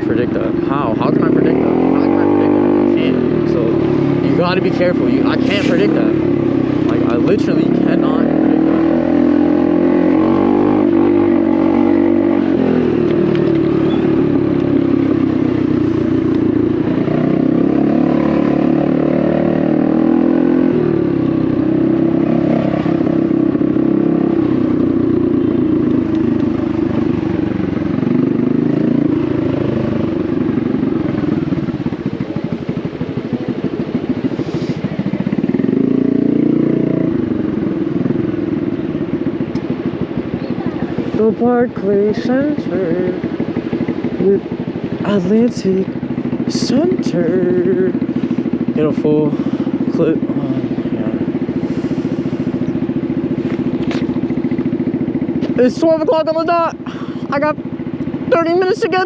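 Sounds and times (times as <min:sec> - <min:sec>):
small motorcycle engine revving: 0:00.2 - 0:59.0.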